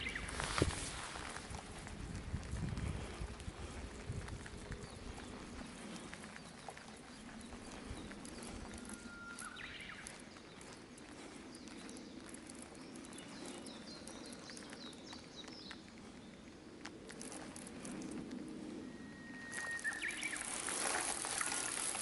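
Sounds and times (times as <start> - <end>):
faint bird calls: 4.8 - 16.5, 18.8 - 20.9.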